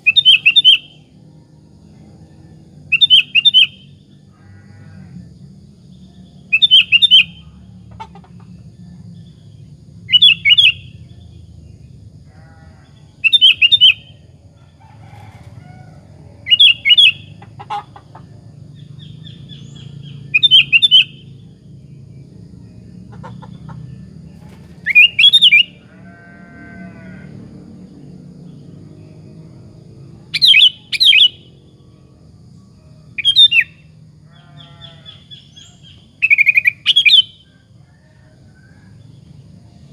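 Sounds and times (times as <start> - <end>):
bulbul singing: 0.0 - 4.3, 5.9 - 7.9, 8.6 - 12.1, 13.0 - 14.4, 16.4 - 22.9, 23.6 - 25.9, 30.3 - 37.7
faint low hum: 0.0 - 25.0, 25.6 - 36.2, 37.4 - 39.9.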